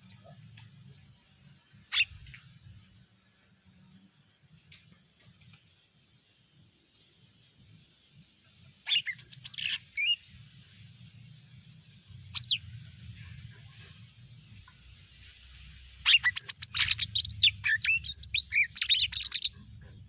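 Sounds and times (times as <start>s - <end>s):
bird chirps and whistles: 8.9s - 10.2s, 12.3s - 12.7s, 16.0s - 19.5s.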